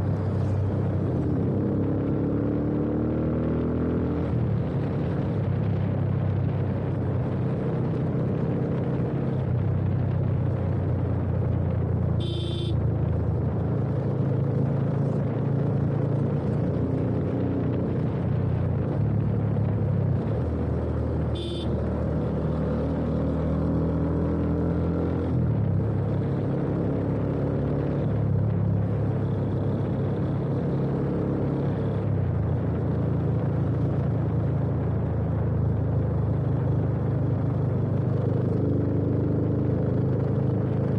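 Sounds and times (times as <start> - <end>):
motorcycle engine revving: 12.2 - 12.8, 20.3 - 25.4.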